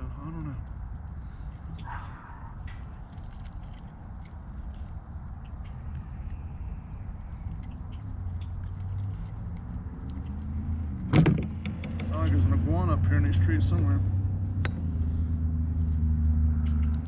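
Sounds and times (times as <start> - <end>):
rustling and ticking in trees: 0.0 - 13.8, 14.6 - 17.0
high bird whistle: 3.1 - 5.4.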